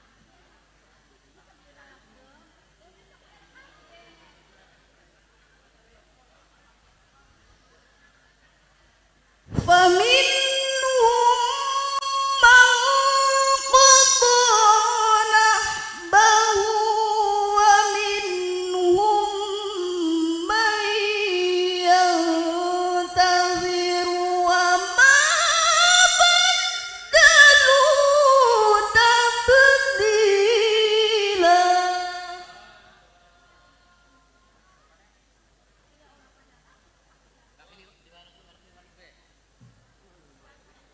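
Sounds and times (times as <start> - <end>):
woman chanting: 9.5 - 35.1.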